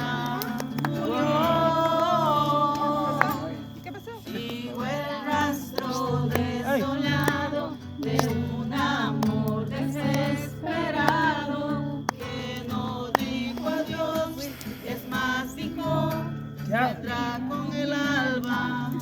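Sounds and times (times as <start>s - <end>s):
song with singing voices: 0.0s - 19.0s.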